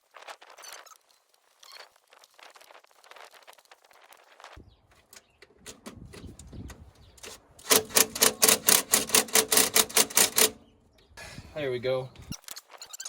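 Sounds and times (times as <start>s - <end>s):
tools being handled: 4.9s - 10.6s
socket ratchet clicking rapidly: 7.2s - 10.7s.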